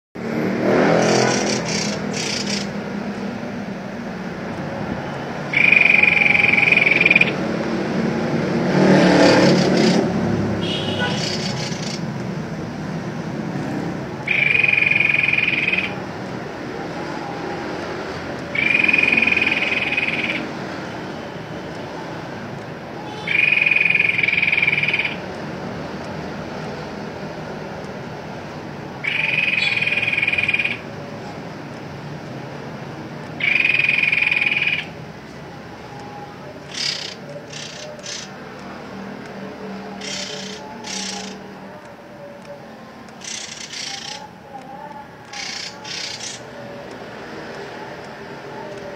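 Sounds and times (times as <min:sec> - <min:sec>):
bird trilling: 0:00.9 - 0:02.8, 0:05.5 - 0:07.4, 0:09.0 - 0:12.1, 0:14.2 - 0:16.1, 0:18.4 - 0:21.0, 0:23.0 - 0:25.2, 0:29.0 - 0:30.9, 0:33.4 - 0:35.0, 0:36.5 - 0:38.4, 0:39.9 - 0:41.5, 0:43.1 - 0:46.6
short sharp chirps: 0:36.7 - 0:38.4, 0:40.0 - 0:41.4.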